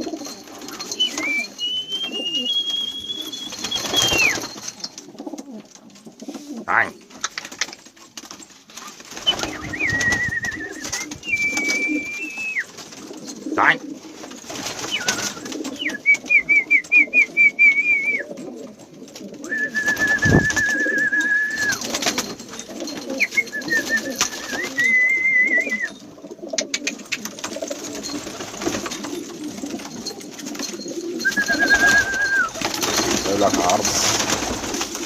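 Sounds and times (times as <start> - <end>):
pigeons cooing: 0.0 - 35.0
high warbling whistles: 1.0 - 4.6, 9.2 - 12.7, 14.8 - 18.2, 19.5 - 21.9, 31.2 - 33.0.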